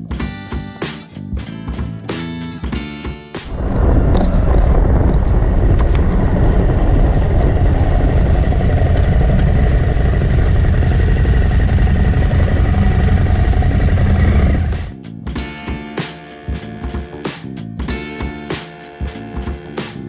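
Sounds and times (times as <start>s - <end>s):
rushing wind noise: 3.4s - 15.0s
motorcycle engine running: 3.5s - 19.8s.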